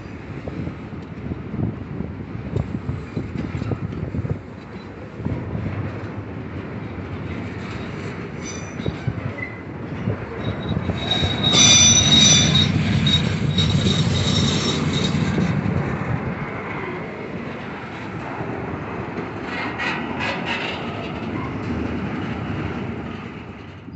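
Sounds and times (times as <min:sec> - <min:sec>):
train cars rumbling on rails: 0:00.0 - 0:23.9
train wheels squealing: 0:07.4 - 0:15.7, 0:19.5 - 0:21.7.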